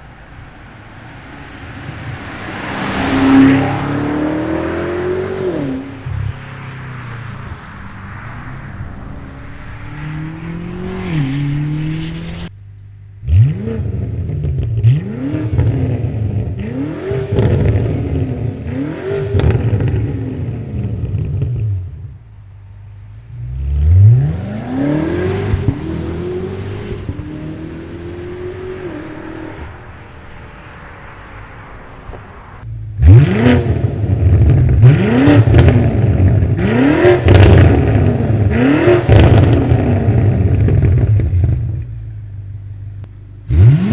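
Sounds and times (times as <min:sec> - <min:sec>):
exhaust crackles: 0:00.0 - 0:18.7
car exhaust accelerating: 0:00.0 - 0:43.9.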